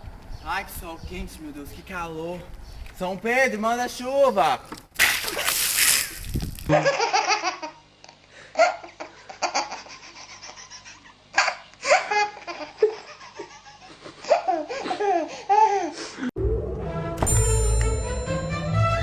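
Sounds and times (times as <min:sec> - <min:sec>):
music: 0:16.4 - 0:19.0.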